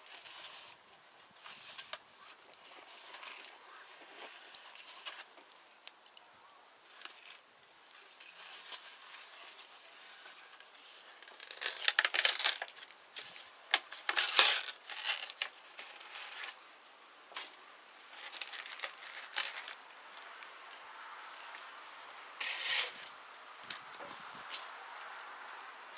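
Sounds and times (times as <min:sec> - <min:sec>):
packaging crinkling and rustling: 0:08.0 - 0:16.6, 0:17.3 - 0:20.8.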